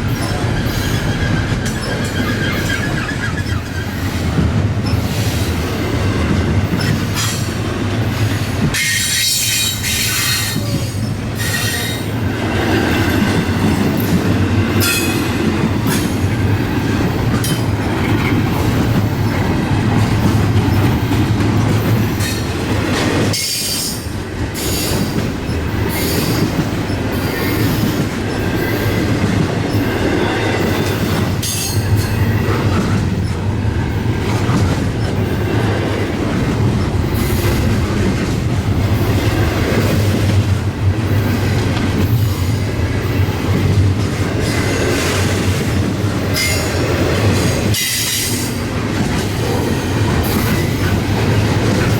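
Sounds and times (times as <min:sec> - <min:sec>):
freight train wheels rumbling: 0:00.0 - 0:51.9
high-pitched wheel squeals: 0:00.2 - 0:04.0.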